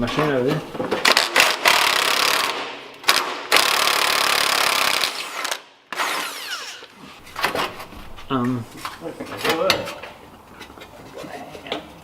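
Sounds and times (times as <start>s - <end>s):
handheld power tool running: 1.4s - 7.0s.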